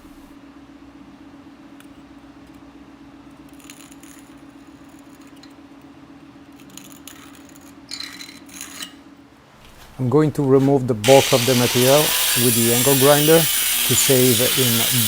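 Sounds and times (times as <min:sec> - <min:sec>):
steady low hum: 0:00.0 - 0:03.3
scribe scratching on steel: 0:11.0 - 0:15.0.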